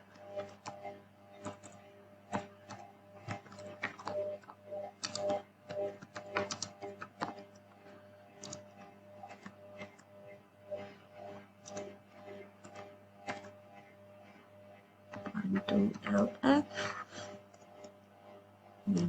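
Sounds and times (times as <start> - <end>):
low electrical hum: 0.0 - 19.0
typing on computer keyboard: 1.4 - 4.4, 5.0 - 5.4, 6.0 - 7.4, 8.4 - 8.7, 11.6 - 11.9.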